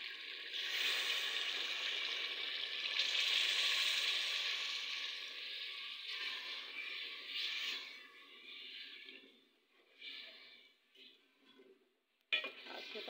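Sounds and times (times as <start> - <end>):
food sizzling in a pot: 0.0 - 9.0
water pouring: 0.0 - 11.9.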